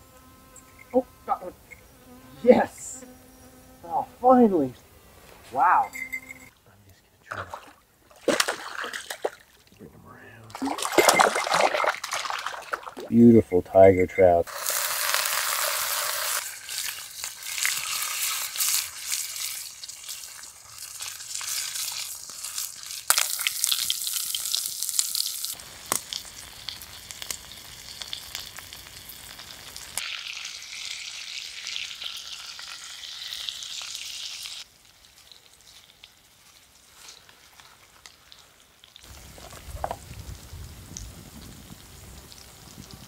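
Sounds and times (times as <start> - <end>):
food sizzling in a pan: 14.5 - 43.0.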